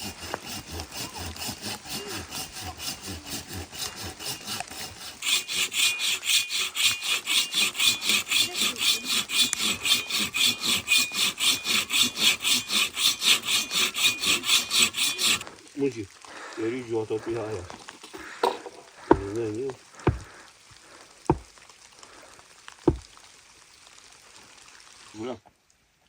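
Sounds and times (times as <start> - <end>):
back-and-forth scraping: 0.0 - 15.7.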